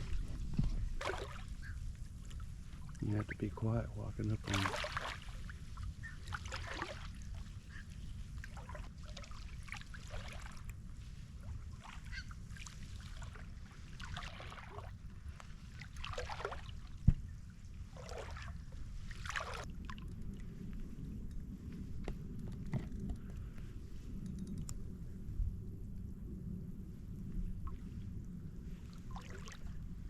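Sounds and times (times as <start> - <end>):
steady low rumble: 0.0 - 11.9, 16.8 - 30.0
wading through shallow water: 0.0 - 22.4, 27.0 - 30.0.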